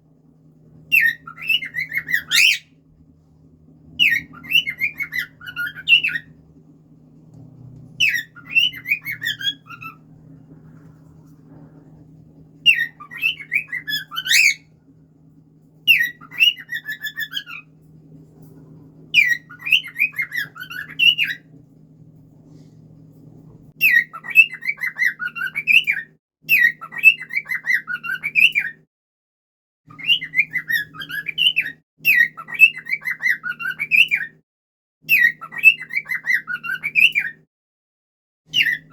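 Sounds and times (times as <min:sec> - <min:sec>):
faint low hum: 0:00.0 - 0:27.3
cockatiel whistling: 0:00.9 - 0:02.7, 0:04.0 - 0:06.3, 0:08.0 - 0:10.0, 0:12.6 - 0:14.6, 0:15.9 - 0:17.7, 0:19.2 - 0:21.4, 0:23.8 - 0:28.7, 0:29.9 - 0:34.3.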